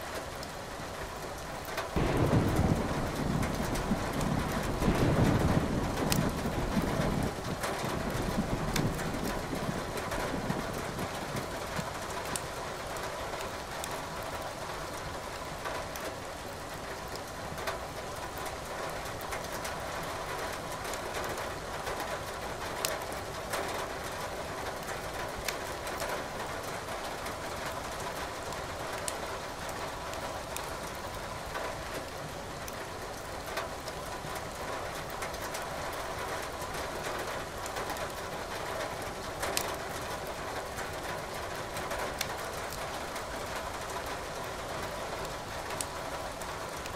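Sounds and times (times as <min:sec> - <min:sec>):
steady rain: 0:00.0 - 0:46.9
thunder rumble: 0:02.0 - 0:11.8
wood crackling in fireplace: 0:40.8 - 0:46.9.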